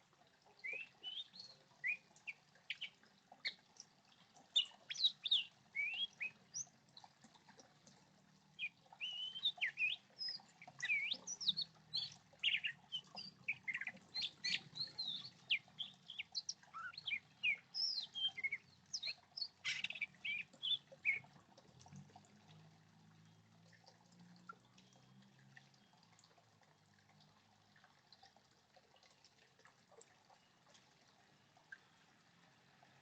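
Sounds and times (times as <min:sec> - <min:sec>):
small birds chirping: 0:00.5 - 0:03.6, 0:04.2 - 0:06.8, 0:08.6 - 0:21.3.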